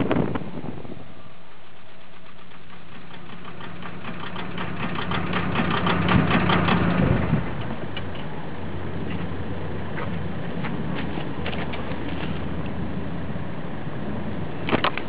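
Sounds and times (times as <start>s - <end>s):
diesel engine idling roughly: 1.6s - 7.6s.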